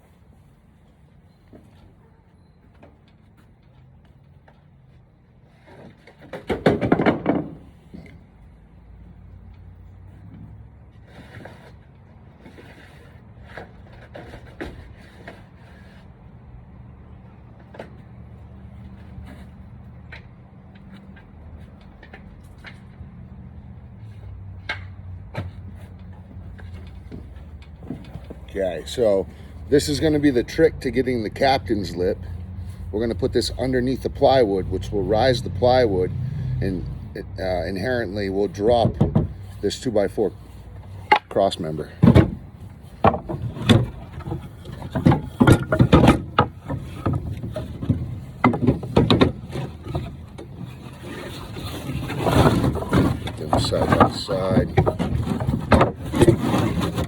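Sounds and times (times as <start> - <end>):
low mechanical hum: 0.0 - 57.0
lumber knocking and clunking: 5.8 - 8.2, 24.7 - 28.5, 37.6 - 39.8, 40.8 - 50.7, 51.4 - 57.0.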